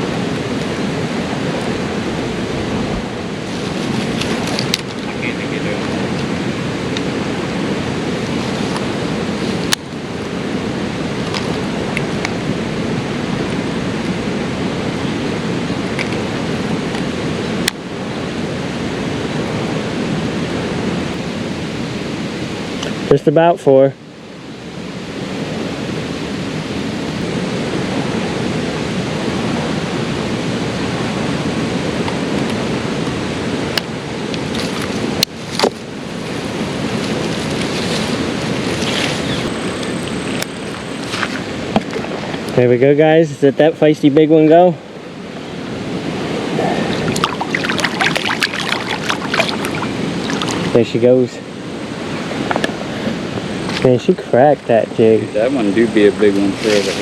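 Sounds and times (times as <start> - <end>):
steady rushing noise: 0.0 - 57.0.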